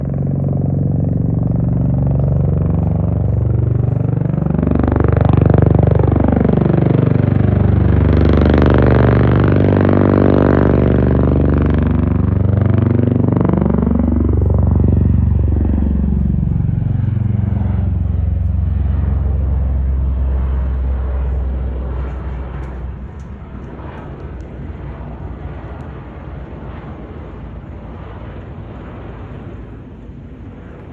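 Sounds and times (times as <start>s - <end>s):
military aircraft flying overhead: 0.0s - 30.9s.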